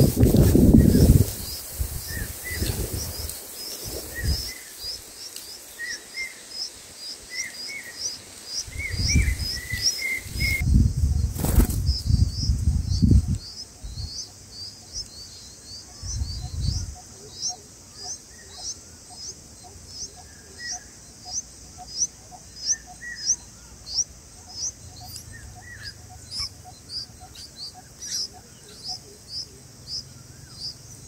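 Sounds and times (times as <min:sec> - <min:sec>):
bird fluttering and rustling twigs: 0:00.0 - 0:05.9, 0:08.3 - 0:12.0
nestlings begging with high cheeps: 0:15.7 - 0:31.0.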